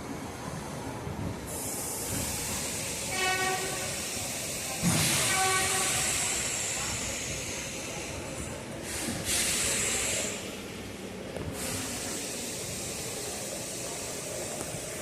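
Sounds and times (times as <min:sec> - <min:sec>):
hiss of air: 0:01.5 - 0:10.8, 0:11.4 - 0:15.0
train horn blasts: 0:03.1 - 0:04.0, 0:05.2 - 0:06.1.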